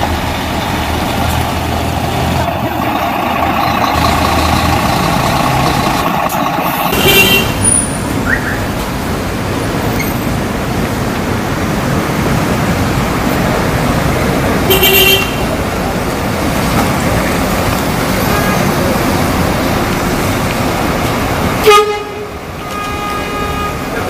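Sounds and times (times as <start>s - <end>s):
road traffic noise: 0.0s - 24.0s
coach horn tooting: 21.6s - 24.0s.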